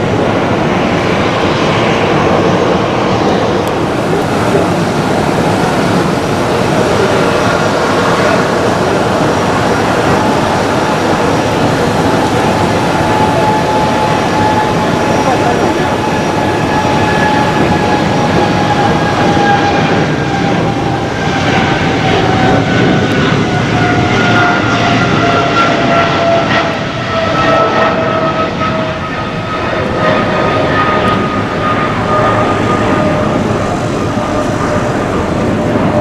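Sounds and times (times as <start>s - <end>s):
jet engines rumbling with whine: 0.0s - 36.0s.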